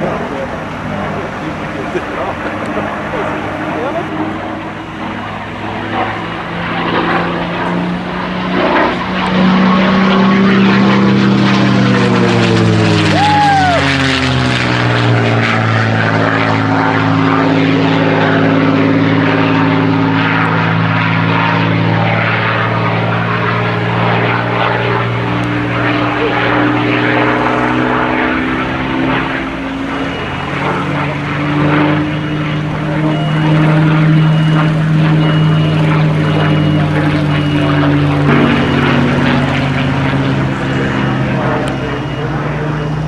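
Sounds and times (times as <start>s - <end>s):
propeller plane flyby: 0.0s - 43.0s.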